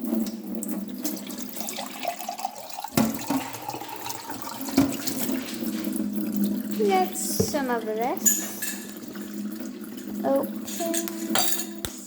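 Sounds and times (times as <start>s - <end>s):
wine glass being washed: 1.2s - 12.0s
tap running into sink: 2.9s - 12.0s.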